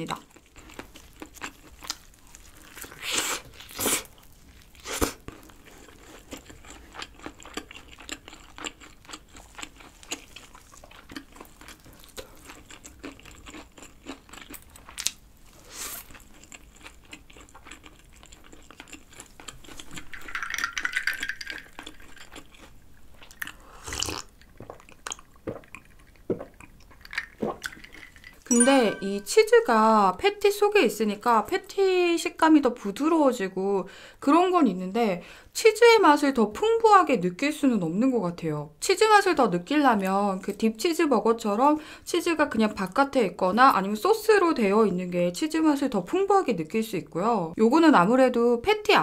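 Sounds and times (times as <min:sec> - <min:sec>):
chewing with wet clicks: 0:00.1 - 0:03.0, 0:05.2 - 0:15.2, 0:16.1 - 0:28.4.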